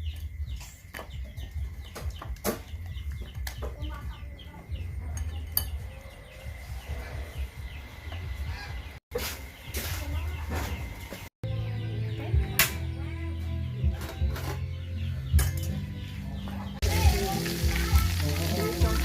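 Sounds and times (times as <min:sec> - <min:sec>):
chickens clucking: 0:13.8 - 0:18.9.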